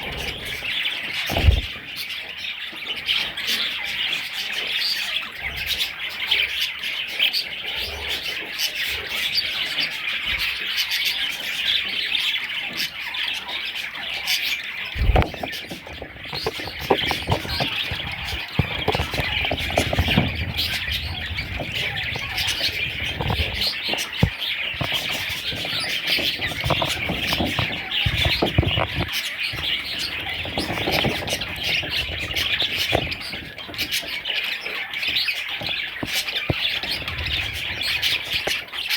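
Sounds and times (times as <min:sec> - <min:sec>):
budgerigars chattering: 0:00.0 - 0:38.9
low knocks and rustles: 0:15.0 - 0:34.2.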